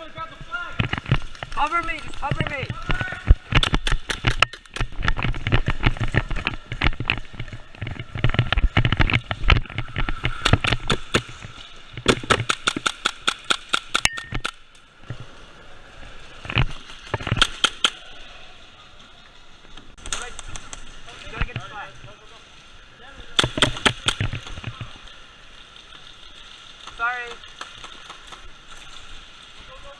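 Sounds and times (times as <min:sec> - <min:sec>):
airsoft guns firing: 0:12.0 - 0:14.6, 0:17.2 - 0:18.0, 0:23.4 - 0:24.2.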